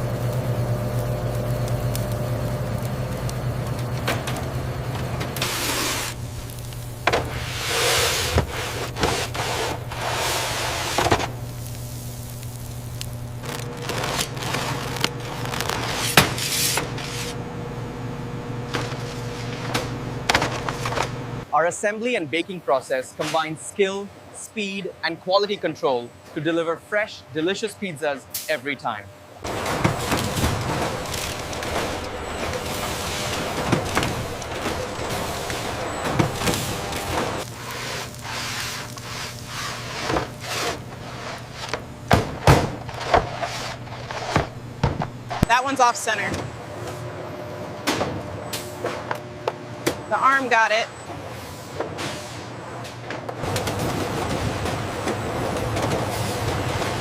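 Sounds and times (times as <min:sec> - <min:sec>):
machinery humming: 0:00.0 - 0:57.0
scraping and rustling strokes: 0:05.4 - 0:17.4, 0:29.5 - 0:41.9, 0:42.8 - 0:44.6.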